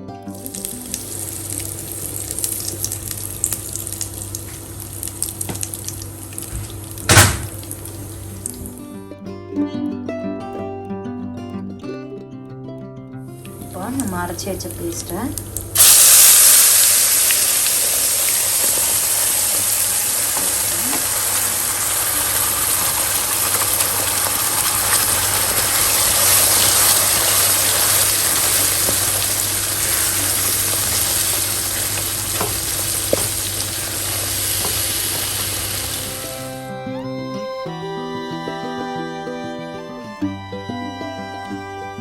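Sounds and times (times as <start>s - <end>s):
food sizzling in hot oil: 0.3s - 8.8s, 13.5s - 36.6s.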